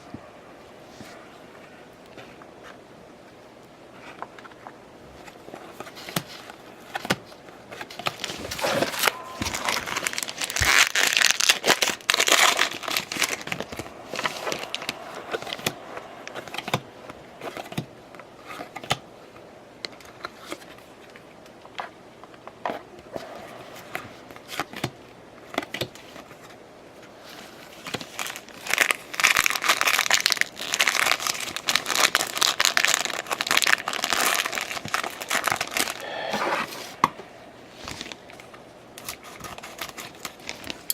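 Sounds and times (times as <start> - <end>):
wrappers tearing and crinkling: 7.8 - 16.8, 27.7 - 36.0, 39.0 - 40.9.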